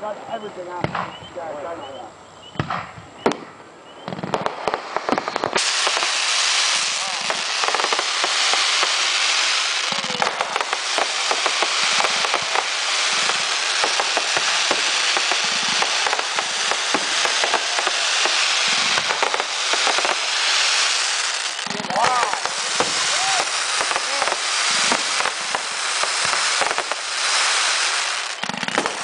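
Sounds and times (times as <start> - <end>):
fireworks crackling and popping: 0.7 - 29.0
deep firework thumps: 0.8 - 1.3, 2.5 - 6.2, 21.6 - 27.1.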